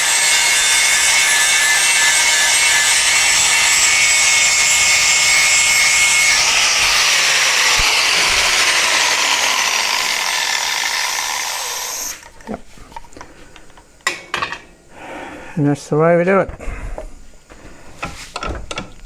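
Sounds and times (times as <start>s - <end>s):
angle grinder grinding steel: 0.0s - 12.4s.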